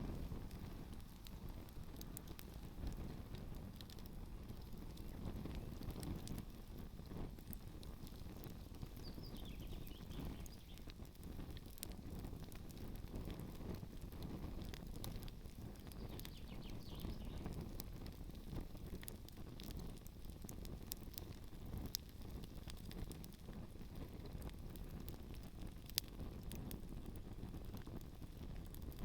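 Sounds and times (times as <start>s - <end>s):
low steady rumble: 0.0s - 19.7s
campfire crackling and popping: 0.0s - 29.0s.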